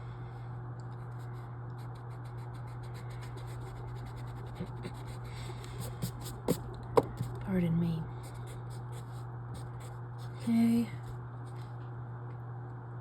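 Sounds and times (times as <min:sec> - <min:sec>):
steady low hum: 0:00.0 - 0:13.0
pen scratching on paper: 0:02.0 - 0:07.4.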